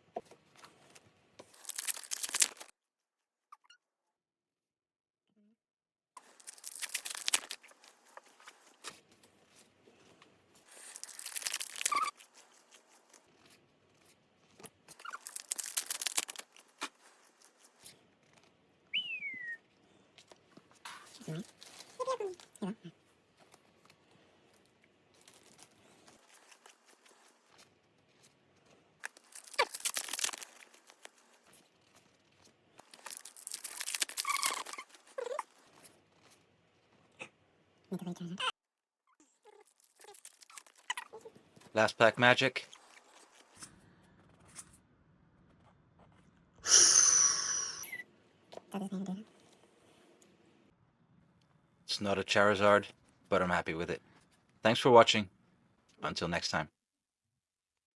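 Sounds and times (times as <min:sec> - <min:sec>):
foil wrapper tearing: 0:01.4 - 0:02.7, 0:06.2 - 0:08.8, 0:10.6 - 0:13.2, 0:14.9 - 0:17.8, 0:25.1 - 0:27.5, 0:29.0 - 0:32.2, 0:32.8 - 0:35.8, 0:39.6 - 0:41.0
short falling squeak: 0:46.7 - 0:48.0.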